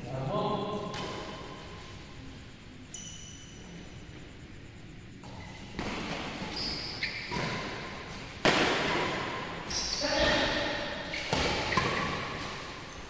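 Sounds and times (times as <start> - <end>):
shoe squeaks: 2.8 - 3.8, 5.3 - 8.1, 9.6 - 13.0.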